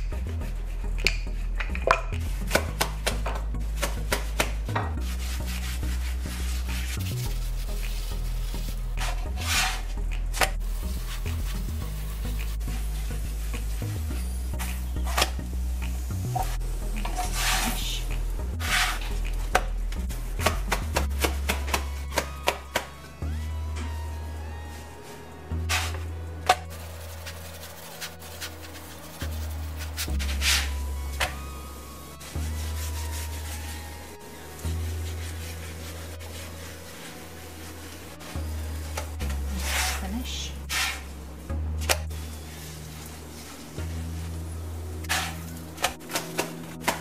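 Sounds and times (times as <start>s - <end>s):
background music with bass: 0.0s - 47.0s
hands slapping bread: 1.0s - 4.8s, 20.4s - 23.0s, 45.2s - 47.0s
spatula scraping griddle: 5.0s - 9.9s, 16.4s - 18.0s, 18.6s - 19.2s, 25.7s - 30.8s, 35.1s - 41.1s, 45.0s - 47.0s.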